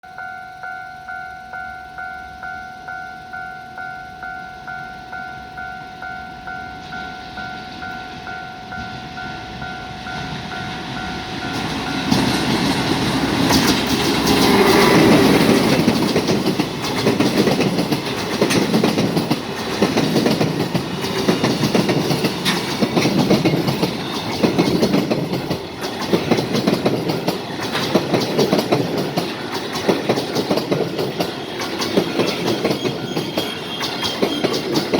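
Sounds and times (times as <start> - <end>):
level crossing bell dinging: 0.0 - 12.3
electric locomotive passing: 0.1 - 34.9
train wheels clickety-clack: 10.1 - 34.9.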